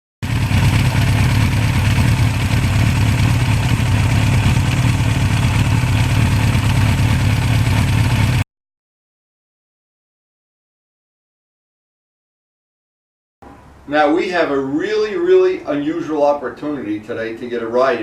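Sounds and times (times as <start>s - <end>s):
motorcycle engine idling: 0.2s - 8.4s.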